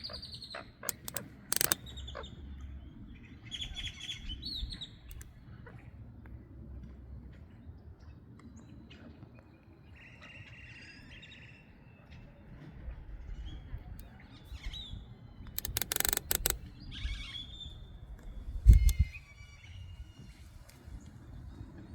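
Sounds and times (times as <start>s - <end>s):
sharp clattering: 0.9s - 1.8s.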